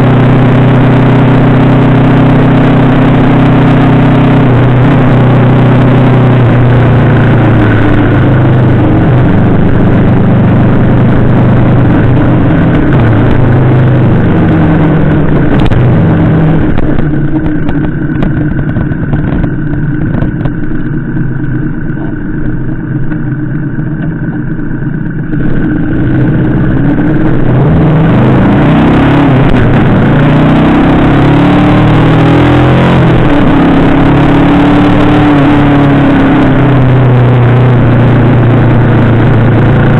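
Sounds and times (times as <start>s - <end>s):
motorcycle engine running: 0.0s - 39.9s
wind rush: 4.3s - 21.0s, 25.2s - 39.9s.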